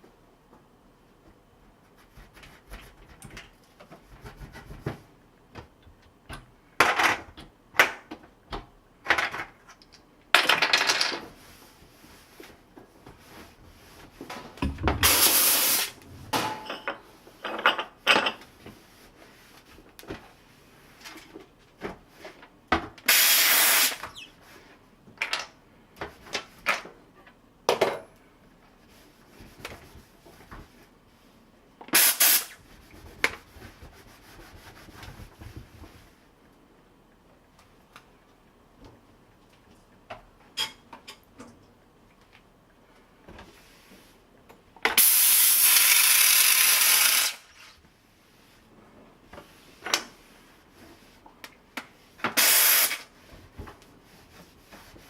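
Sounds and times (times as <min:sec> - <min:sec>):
steam cleaner hissing bursts: 0:15.0 - 0:16.0, 0:23.1 - 0:24.0, 0:32.0 - 0:32.6, 0:45.0 - 0:47.4, 0:52.4 - 0:53.1.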